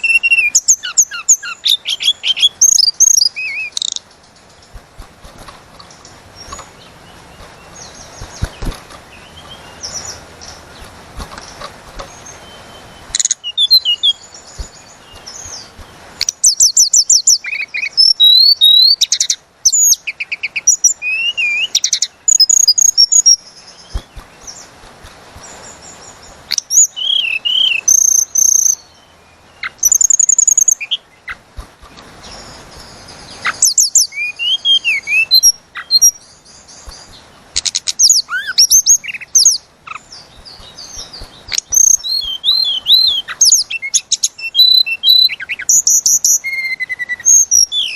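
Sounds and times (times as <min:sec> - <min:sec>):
songbird whistling and trilling: 0:00.0 - 0:04.0, 0:12.2 - 0:24.1, 0:26.5 - 0:29.0, 0:29.6 - 0:31.0, 0:32.2 - 0:47.9.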